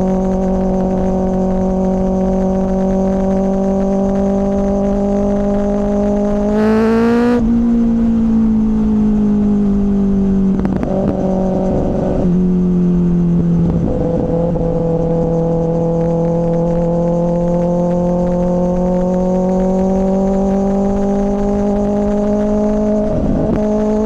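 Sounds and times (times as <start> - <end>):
motorcycle engine revving: 5.0 - 7.6.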